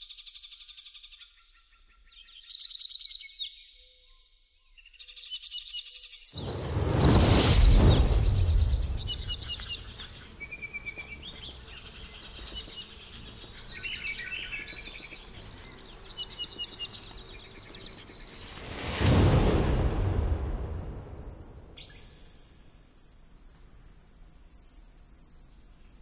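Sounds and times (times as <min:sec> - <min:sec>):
rushing whoosh: 0:06.4 - 0:11.2, 0:18.1 - 0:22.4
songbirds chirping and trilling: 0:08.6 - 0:18.5.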